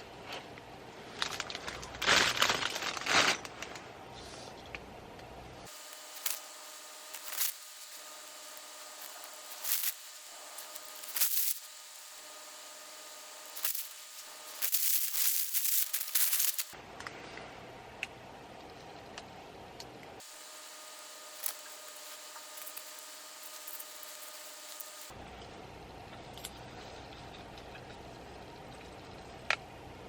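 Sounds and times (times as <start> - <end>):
rustling and scraping of objects: 0.2 - 4.7.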